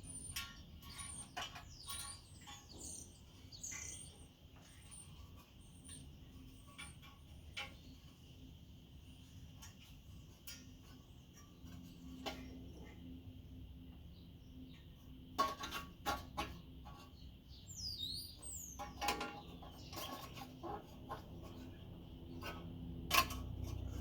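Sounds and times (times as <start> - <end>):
bird chirps: 0.0 - 7.0, 17.2 - 20.4.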